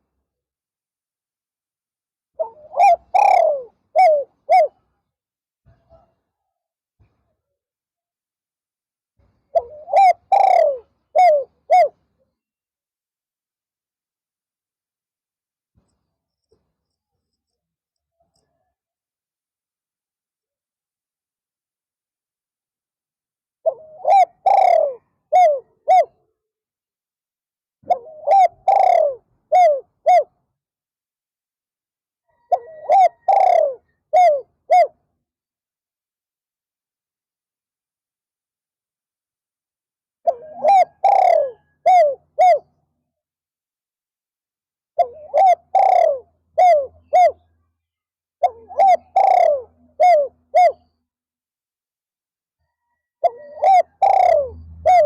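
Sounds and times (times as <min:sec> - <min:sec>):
dove cooing: 0:02.4 - 0:04.9, 0:09.5 - 0:12.0, 0:23.6 - 0:26.3, 0:27.8 - 0:30.3, 0:32.3 - 0:35.0, 0:40.2 - 0:42.7, 0:45.0 - 0:47.5, 0:48.4 - 0:50.9, 0:52.6 - 0:55.0.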